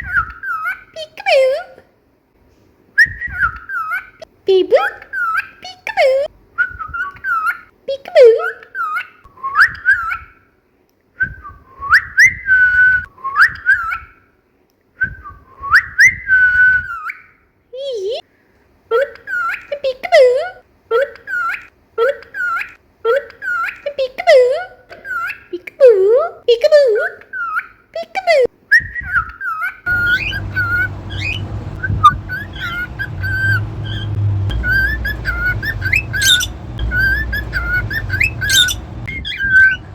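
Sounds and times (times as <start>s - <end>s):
cockatiel whistling a tune: 3.0s - 4.0s, 6.6s - 7.6s, 9.4s - 10.4s, 11.2s - 14.2s, 15.1s - 17.3s, 28.7s - 39.9s
steady low hum: 29.9s - 39.9s.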